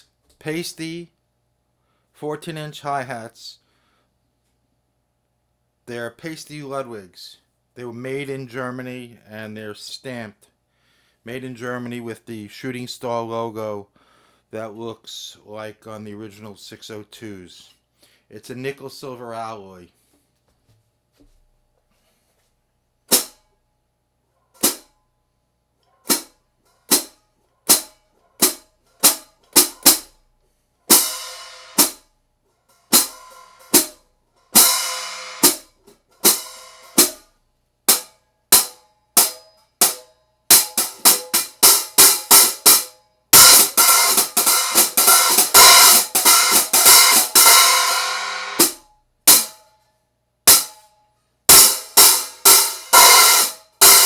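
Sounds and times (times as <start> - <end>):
hi-hat cymbals played: 30.9 - 32.0, 32.7 - 37.2, 37.9 - 49.6, 51.5 - 54.0.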